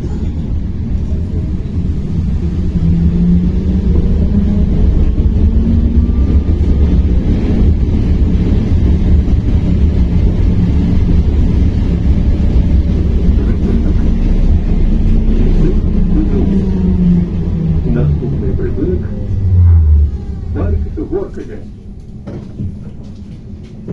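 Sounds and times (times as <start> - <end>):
vehicle ride rumble: 0.0 - 23.9.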